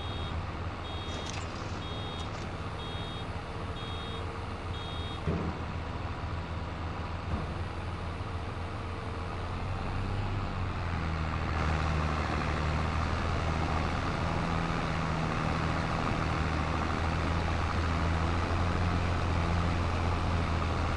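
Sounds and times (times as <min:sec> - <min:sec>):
tractor engine running: 0:00.0 - 0:08.6.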